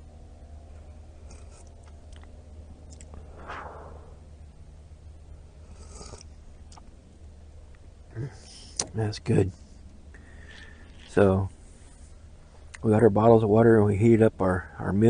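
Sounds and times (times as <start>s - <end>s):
person sipping tea: 5.8s - 6.3s.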